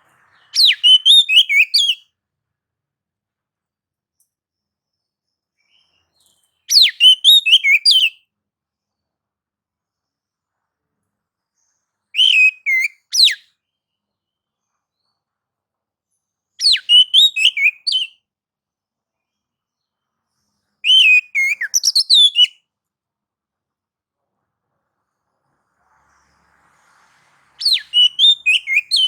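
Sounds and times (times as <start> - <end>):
bird singing whistled notes: 0.3 - 2.0, 5.6 - 8.2, 12.2 - 13.5, 16.6 - 18.2, 20.8 - 22.6, 27.6 - 29.0.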